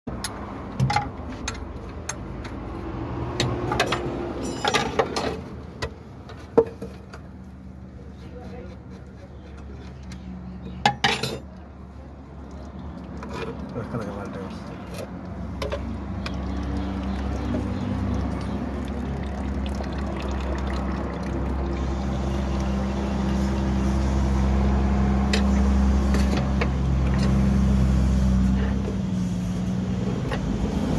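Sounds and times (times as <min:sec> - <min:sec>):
sharp clicks and knocks: 0:00.1 - 0:02.6.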